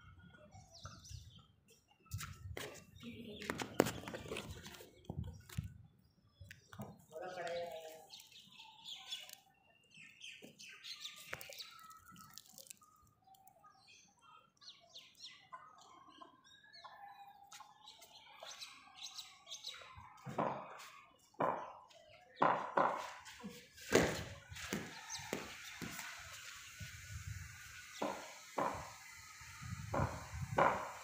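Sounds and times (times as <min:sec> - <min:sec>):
birds chirping faintly: 0:00.1 - 0:31.0
knocks: 0:29.9 - 0:31.0.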